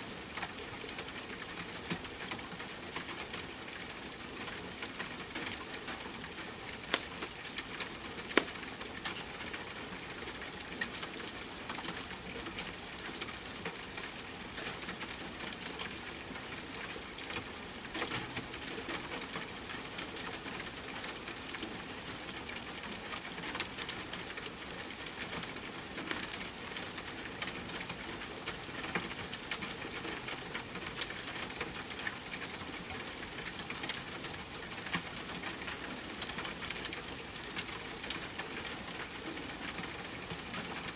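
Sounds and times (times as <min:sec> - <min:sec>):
wood fire crackling: 0:06.7 - 0:08.8.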